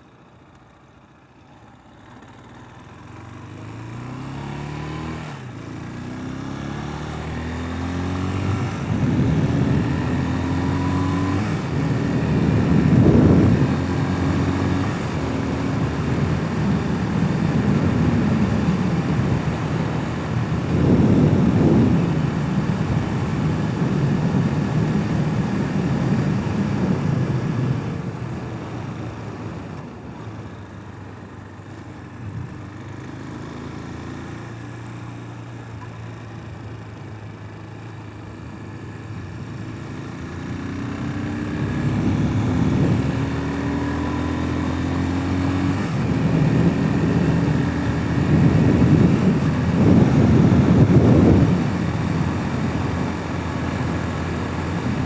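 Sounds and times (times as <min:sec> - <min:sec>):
dirt bike engine: 0:00.0 - 0:55.0
wind rushing over microphone: 0:07.2 - 0:29.8, 0:39.2 - 0:55.0.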